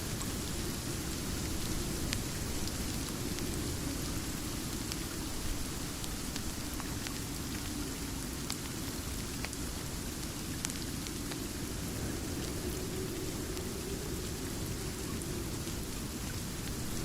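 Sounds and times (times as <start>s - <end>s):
steady rain hissing: 0.0s - 17.0s
small ticks and pops: 6.0s - 11.6s.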